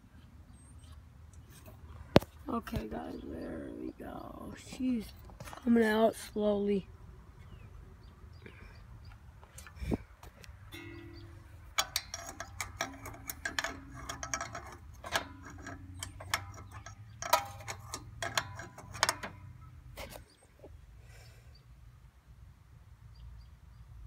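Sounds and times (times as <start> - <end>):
metal clicks and knocks from tools: 10.7 - 20.2.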